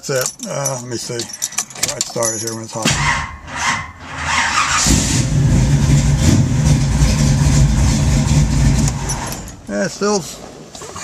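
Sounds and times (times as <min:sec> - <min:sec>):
engine running with low rumble: 0:03.4 - 0:09.7.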